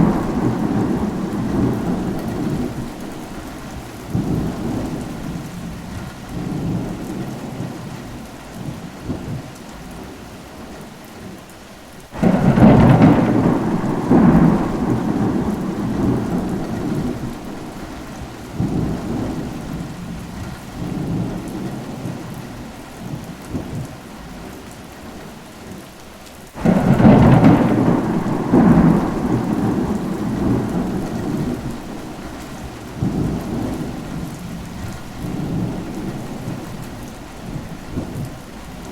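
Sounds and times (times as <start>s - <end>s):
thunder rolling: 0.0s - 7.8s, 12.2s - 22.3s, 26.6s - 38.9s
steady rain: 0.0s - 38.9s.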